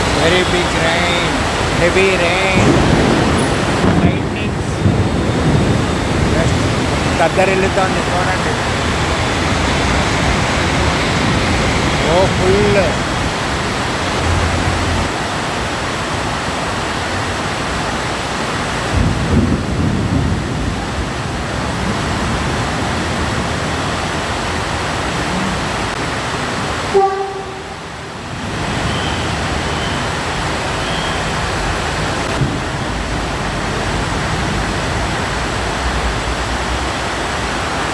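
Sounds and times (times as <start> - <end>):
thunder rumble: 0.0 - 16.5, 18.5 - 37.7
heavy rain: 0.0 - 37.9
short horn tone: 26.9 - 27.9.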